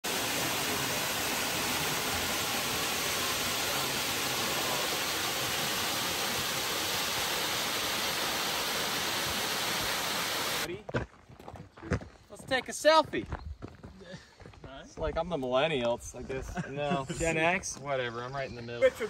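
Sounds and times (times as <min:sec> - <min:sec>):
waterfall roaring: 0:00.0 - 0:10.7.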